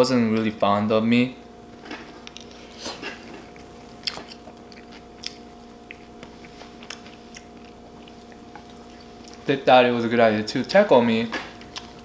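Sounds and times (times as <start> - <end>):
mouth chewing food: 2.2 - 9.5.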